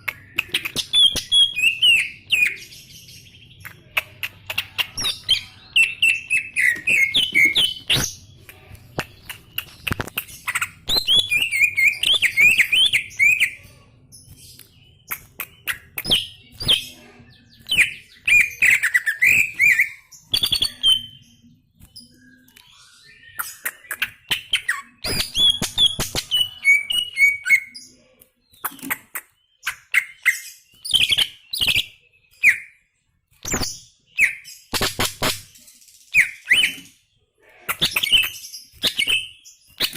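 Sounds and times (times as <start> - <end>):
sharp bird clicks: 0.0 - 2.4, 3.5 - 13.5, 14.2 - 16.8, 21.8 - 27.2, 28.2 - 32.6, 33.4 - 35.6
bird singing warbling phrases: 0.0 - 39.9.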